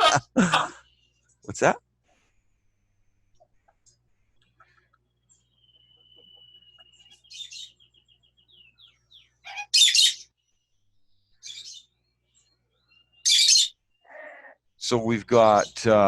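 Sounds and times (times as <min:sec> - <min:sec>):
parrot chirping: 0:04.4 - 0:10.5, 0:11.3 - 0:14.5
parrot whistling: 0:05.6 - 0:07.8
parrot squawking: 0:06.3 - 0:07.8, 0:09.2 - 0:10.3, 0:11.4 - 0:11.9, 0:13.2 - 0:14.5.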